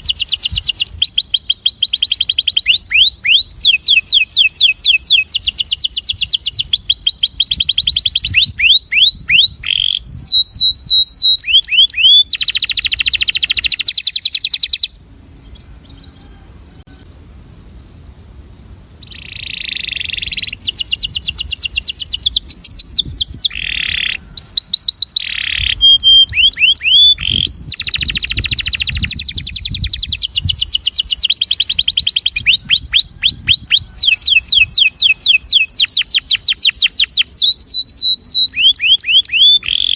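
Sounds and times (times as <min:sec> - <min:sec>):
canary singing trills: 0:00.0 - 0:18.1, 0:18.8 - 0:39.9.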